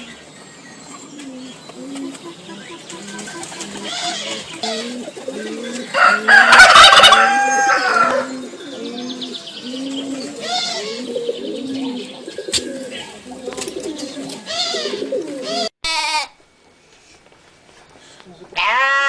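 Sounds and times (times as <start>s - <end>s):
birds cooing: 0.0s - 15.7s
rooster crowing: 5.9s - 8.4s.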